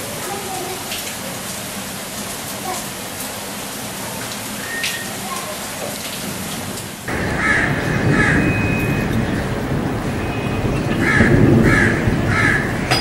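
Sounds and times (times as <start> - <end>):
rain falling: 0.0 - 13.0
crows cawing: 7.1 - 9.1, 11.0 - 13.0.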